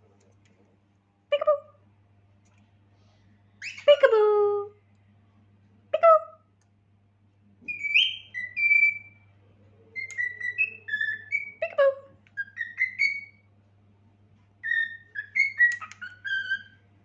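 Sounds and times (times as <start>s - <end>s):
cockatiel whistling: 7.7s - 9.2s, 10.0s - 11.6s, 12.4s - 13.4s, 14.6s - 16.8s.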